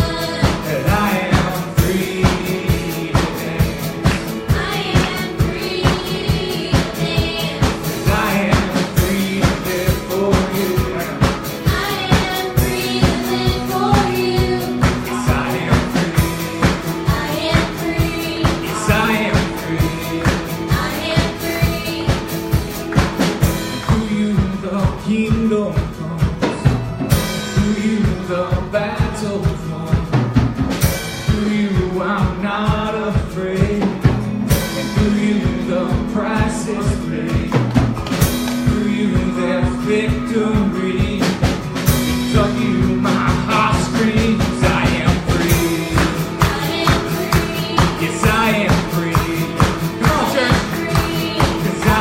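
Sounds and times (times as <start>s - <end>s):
person singing: 0.0s - 22.5s, 38.4s - 52.0s
drum kit beat: 0.0s - 52.0s
worship band playing: 0.0s - 52.0s.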